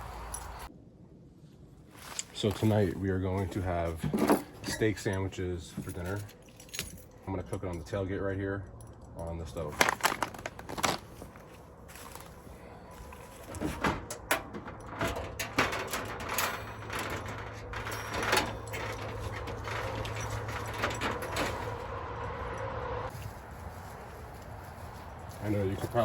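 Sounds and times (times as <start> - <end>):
camp cooking gear clanking: 3.5 - 7.9, 9.6 - 11.4, 12.9 - 22.0.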